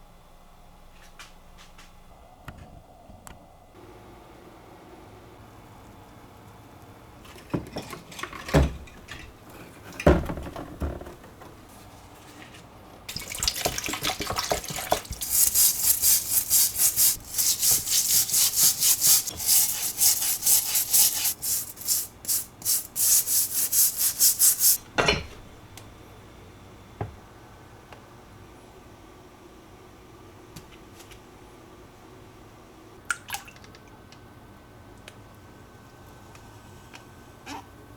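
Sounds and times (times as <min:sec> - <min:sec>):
scrubbing metal parts: 0:14.6 - 0:24.8.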